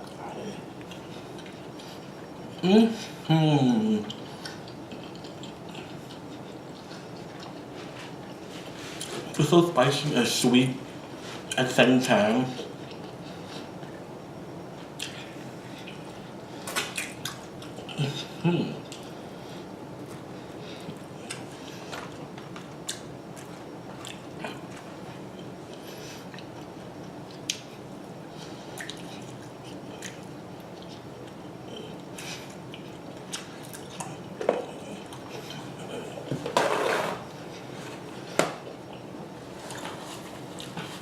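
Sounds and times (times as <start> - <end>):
person chewing wetly: 0.8 - 2.3, 4.1 - 8.4, 12.8 - 14.0, 15.0 - 16.2, 16.9 - 18.0, 20.1 - 27.8, 28.7 - 36.4
mouth clicks and smacks: 28.8 - 30.2.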